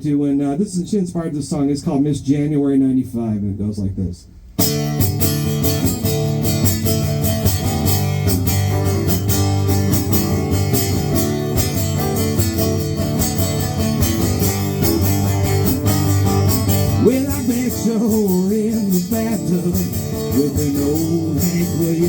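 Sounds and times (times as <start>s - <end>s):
acoustic guitar strumming: 4.6s - 22.0s.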